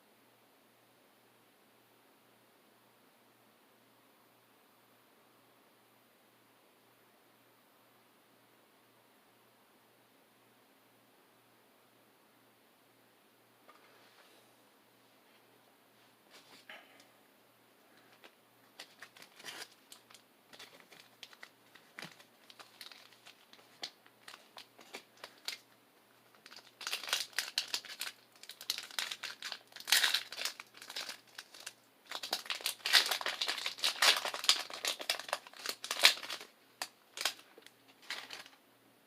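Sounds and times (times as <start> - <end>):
foil wrapper crinkling: 18.8 - 25.6, 26.3 - 38.6
wrapper tearing: 18.8 - 25.6, 26.4 - 38.6.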